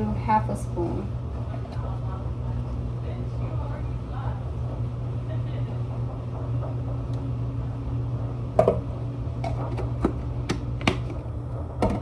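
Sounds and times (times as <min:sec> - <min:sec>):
steady low hum: 0:00.0 - 0:12.0
spoon knocking on containers: 0:08.6 - 0:11.2.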